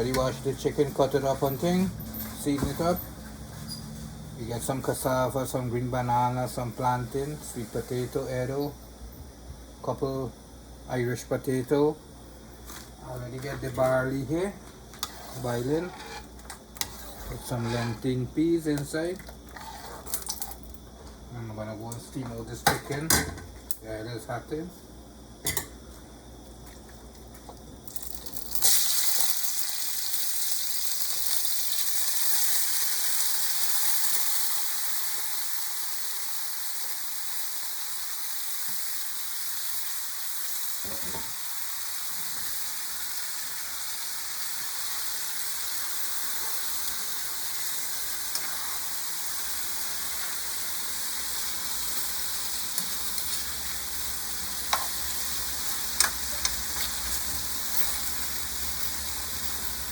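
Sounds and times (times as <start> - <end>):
chicken wings sizzling in pot: 27.9 - 59.9.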